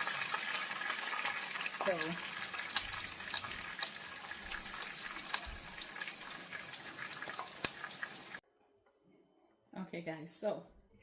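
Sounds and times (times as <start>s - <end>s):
oil pops and crackles: 0.0s - 8.3s
fish sizzling in hot oil: 0.0s - 8.4s.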